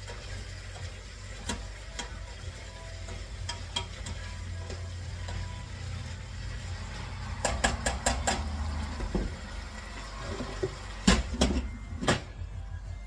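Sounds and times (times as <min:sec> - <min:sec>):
cookware and utensils clinking: 0:00.0 - 0:12.3.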